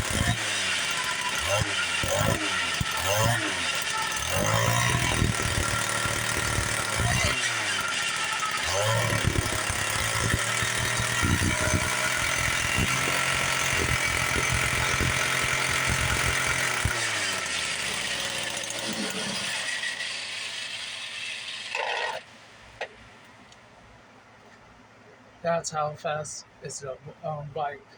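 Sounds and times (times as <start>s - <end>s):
small two-stroke engine clattering: 0.0s - 22.2s.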